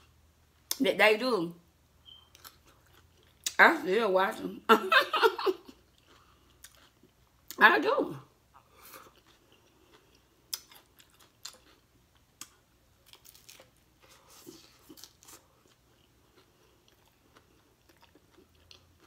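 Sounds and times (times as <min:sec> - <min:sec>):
faint chewing: 0:02.1 - 0:03.6, 0:05.6 - 0:07.6, 0:08.5 - 0:19.0.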